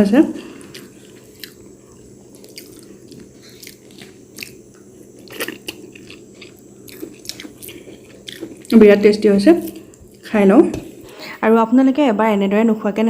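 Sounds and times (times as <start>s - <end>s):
low steady hum: 0.0s - 13.0s
person chewing and biting food: 0.6s - 8.8s.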